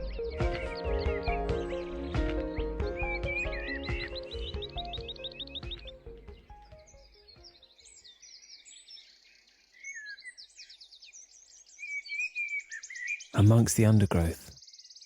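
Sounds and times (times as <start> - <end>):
background music: 0.0 - 7.4
songbirds singing: 0.0 - 13.4.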